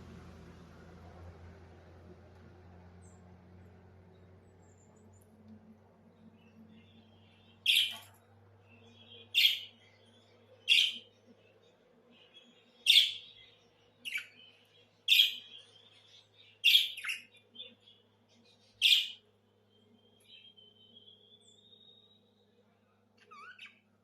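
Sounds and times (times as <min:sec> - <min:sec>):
budgerigar chirping: 0:07.6 - 0:08.0, 0:09.1 - 0:09.7, 0:10.6 - 0:11.1, 0:12.9 - 0:13.4, 0:14.1 - 0:14.3, 0:15.1 - 0:15.6, 0:16.6 - 0:17.4, 0:18.8 - 0:19.2, 0:23.2 - 0:23.8.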